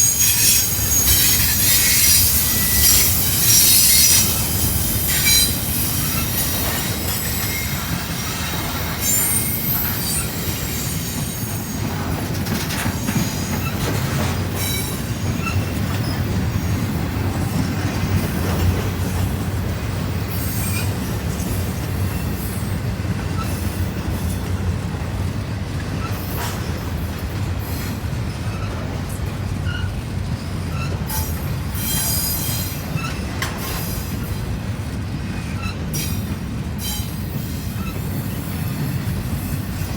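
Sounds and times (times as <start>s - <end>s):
high-pitched wheel squeals: 0.0s - 11.8s, 29.6s - 33.8s
train wheels rumbling on rail: 0.0s - 39.9s.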